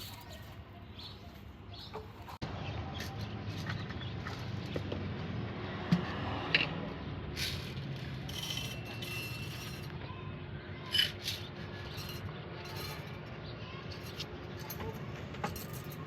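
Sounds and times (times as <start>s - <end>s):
coffee utensils and cups clinking: 7.4s - 10.0s, 10.8s - 13.3s, 13.9s - 16.0s.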